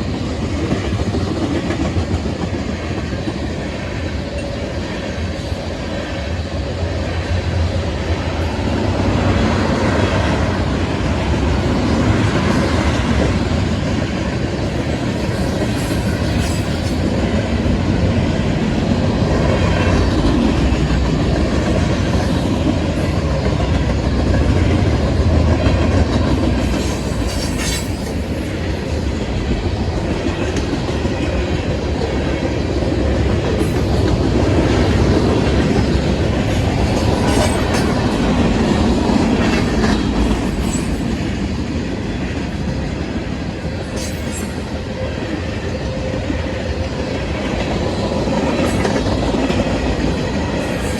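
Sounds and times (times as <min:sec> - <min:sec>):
low rumble of train: 0:00.0 - 0:50.9
train wheels clacking over rail joints: 0:11.4 - 0:46.1, 0:46.9 - 0:50.9
metallic squeals and clanks: 0:26.7 - 0:28.4, 0:43.9 - 0:44.7.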